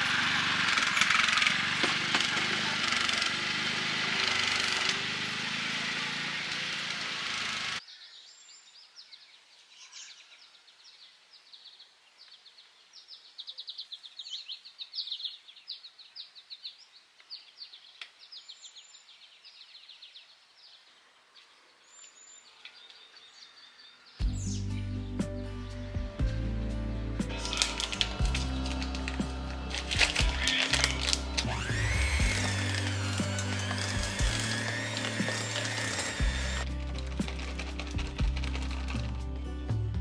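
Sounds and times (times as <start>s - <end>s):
small birds chirping: 7.8s - 36.6s.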